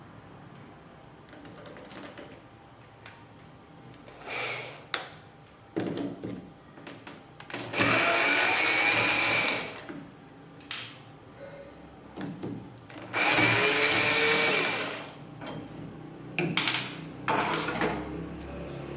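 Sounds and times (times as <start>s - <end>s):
electric drill whining: 4.2s - 4.9s, 7.6s - 9.9s, 13.0s - 15.2s.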